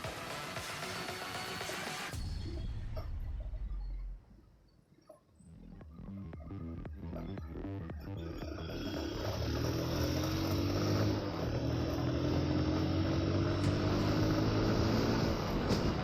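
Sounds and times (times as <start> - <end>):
motorcycle engine accelerating: 7.8 - 16.0
wind and road noise: 9.2 - 16.0.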